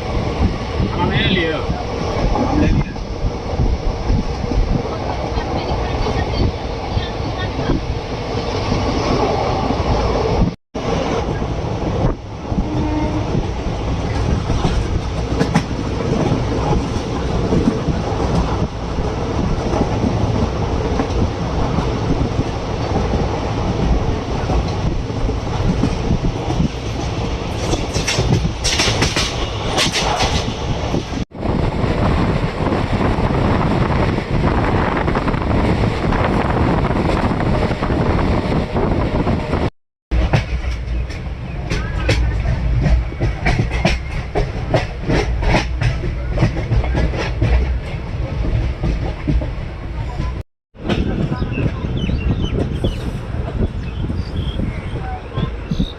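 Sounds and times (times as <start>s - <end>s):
train rumbling: 0.0s - 55.9s
wheels clacking over rail joints: 12.6s - 31.2s, 40.1s - 51.8s.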